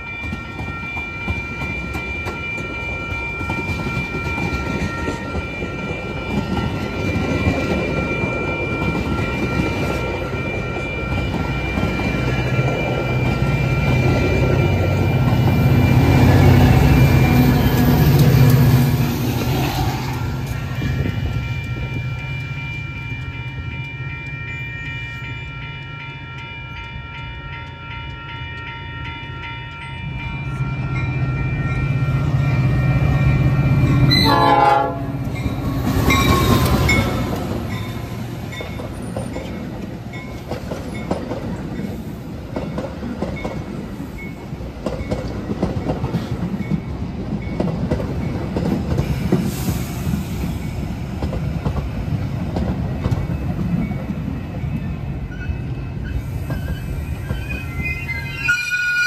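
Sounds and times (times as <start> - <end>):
wheels clickety-clack on rails: 0.0 - 58.6
crossing warning bells ringing: 0.0 - 59.0.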